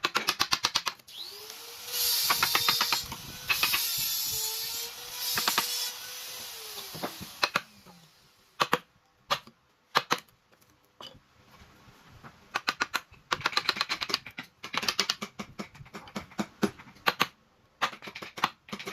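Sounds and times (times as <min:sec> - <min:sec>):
power tool spinning down: 0:01.1 - 0:08.4
rapid clicking and tapping: 0:12.5 - 0:18.9.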